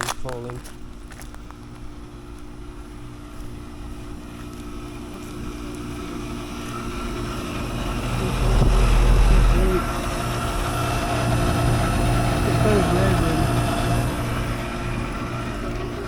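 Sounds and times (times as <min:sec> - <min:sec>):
air conditioner compressor hum: 0:00.0 - 0:16.0
heavy low rumble: 0:04.8 - 0:16.0.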